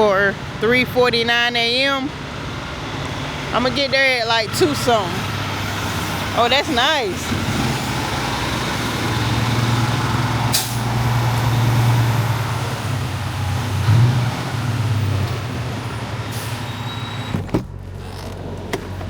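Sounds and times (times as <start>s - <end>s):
diesel engine drone: 0.0s - 19.0s.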